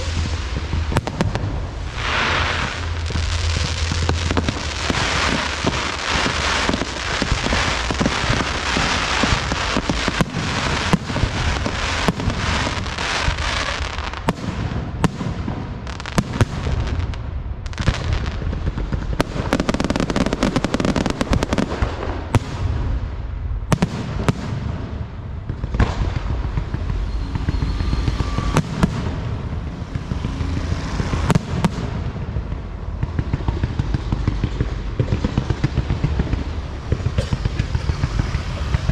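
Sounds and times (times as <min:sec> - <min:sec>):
low rumble: 0:00.0 - 0:13.9
sharp bangs and crackles: 0:00.0 - 0:38.9.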